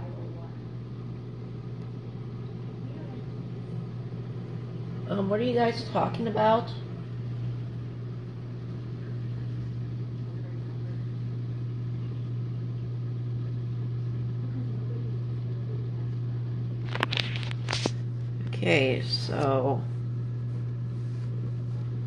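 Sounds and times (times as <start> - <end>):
dishwasher wash noise: 0.0 - 12.3
dishwasher motor hum: 0.0 - 22.0.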